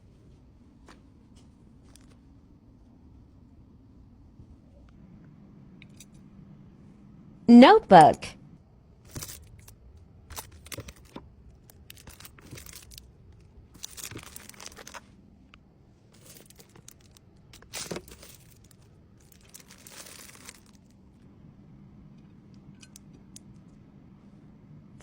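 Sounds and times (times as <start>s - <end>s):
packaging crinkling and rustling: 13.8s - 15.1s, 16.2s - 20.9s.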